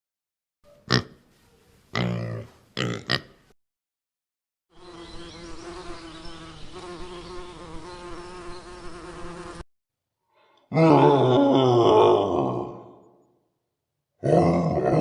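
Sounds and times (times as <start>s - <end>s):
flying insect buzzing: 4.7s - 9.7s.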